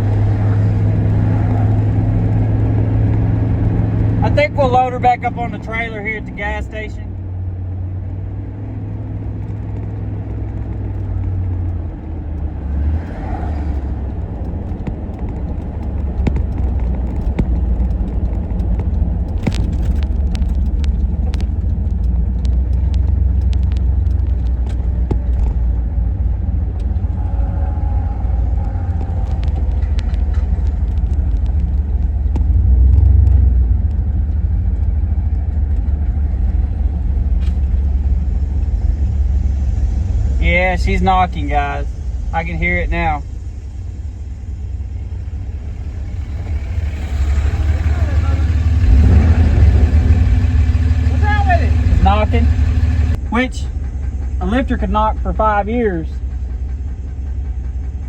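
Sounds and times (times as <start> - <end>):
pickup engine rumbling: 0.0 - 58.0
sharp clicks: 13.7 - 25.8.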